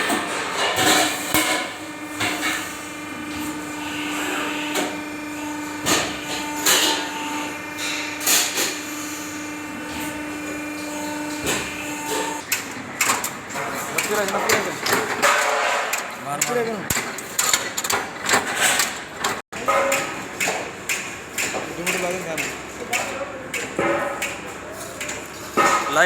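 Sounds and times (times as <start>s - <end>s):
machine hum: 0.0s - 15.3s.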